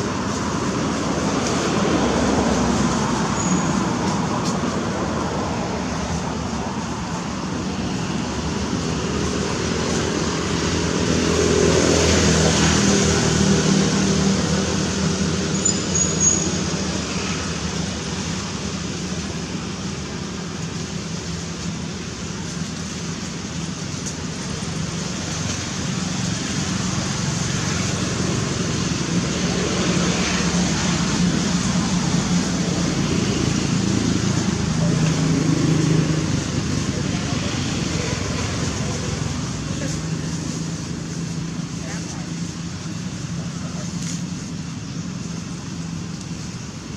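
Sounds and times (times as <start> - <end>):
vehicle noise with low hum: 0.0 - 46.9.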